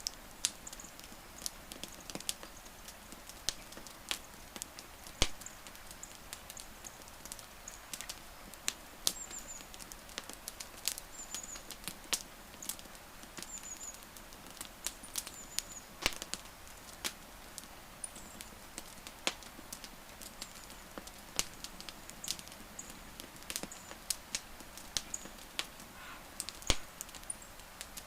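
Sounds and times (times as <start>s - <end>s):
wood fire crackling: 0.0s - 28.0s
faint high chirps: 25.0s - 27.5s.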